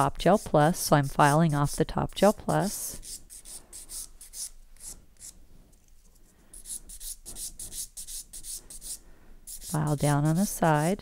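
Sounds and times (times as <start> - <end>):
nail file rasping on nail: 0.1 - 5.4, 6.6 - 10.9.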